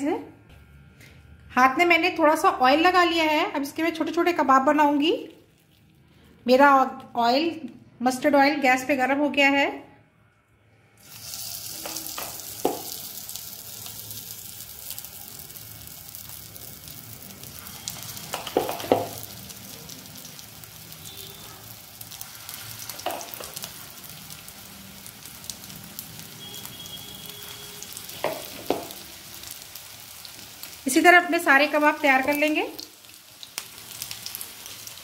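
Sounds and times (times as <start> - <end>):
patties sizzling in oil: 11.0 - 35.0.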